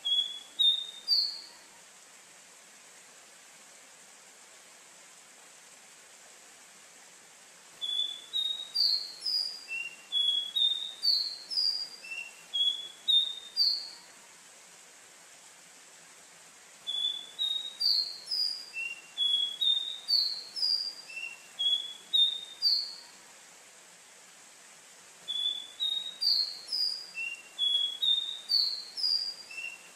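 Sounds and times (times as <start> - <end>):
bird singing whistled notes: 0.0 - 1.6, 7.8 - 14.1, 16.8 - 23.1, 25.3 - 29.9
faint steady hiss: 0.0 - 29.9.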